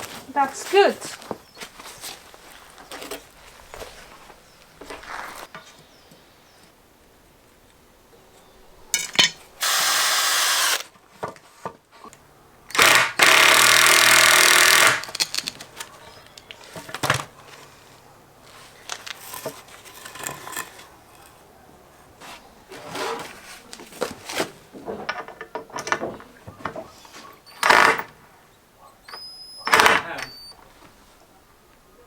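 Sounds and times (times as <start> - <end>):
power drill driving screws: 9.6 - 10.9, 12.7 - 15.2, 27.5 - 28.2, 29.6 - 30.5.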